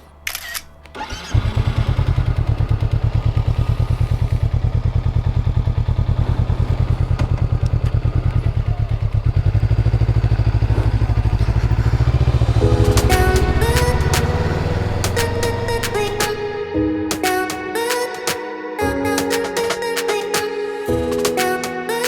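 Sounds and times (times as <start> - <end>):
motorcycle engine at low revs: 1.3 - 16.5.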